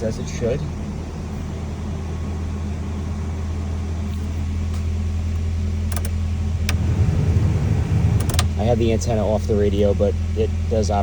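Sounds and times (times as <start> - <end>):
car engine idling: 0.0 - 11.0
sharp clicks: 5.4 - 6.8, 8.2 - 8.6.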